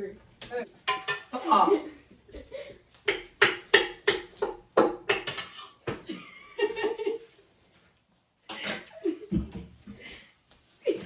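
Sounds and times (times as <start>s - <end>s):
kitchen utensils clattering: 0.4s - 2.0s, 3.0s - 7.4s
people laughing: 6.0s - 7.3s.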